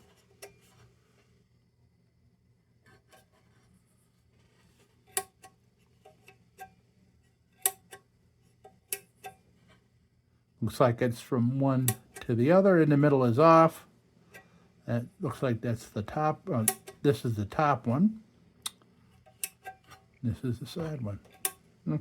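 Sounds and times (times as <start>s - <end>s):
lantern switch clicks: 16.6s - 17.0s.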